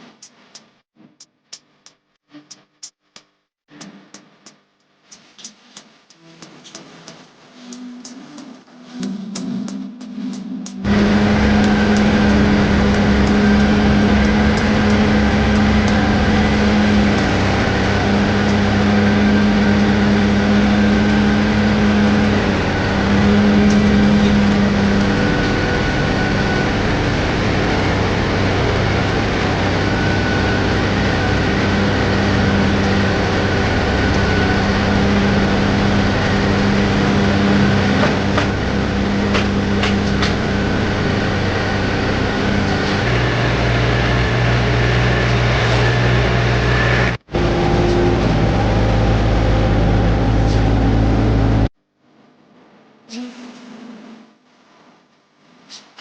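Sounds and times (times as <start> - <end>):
diesel excavator engine droning: 10.6 - 51.7.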